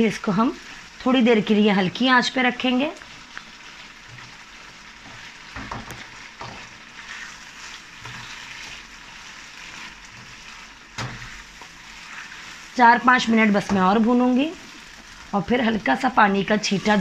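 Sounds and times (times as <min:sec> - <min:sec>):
food sizzling in wok: 0:00.0 - 0:17.0
spatula scraping and knocking pan: 0:04.0 - 0:15.3.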